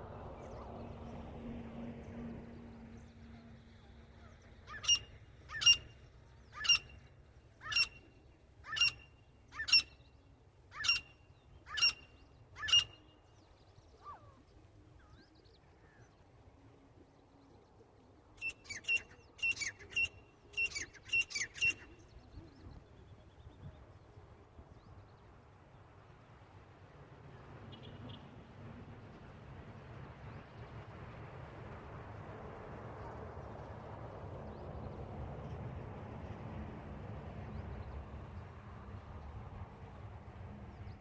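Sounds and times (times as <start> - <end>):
francolin calling: 4.7 - 10.0, 10.7 - 13.1.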